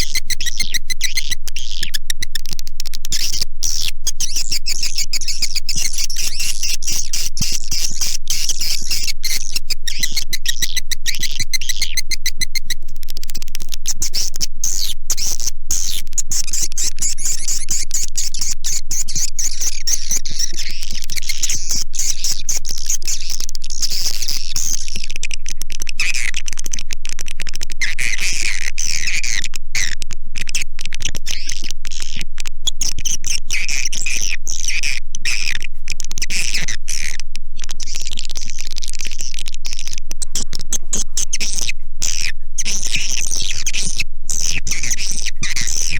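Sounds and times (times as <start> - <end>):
swiftlets chirping and trilling: 0.0 - 13.4.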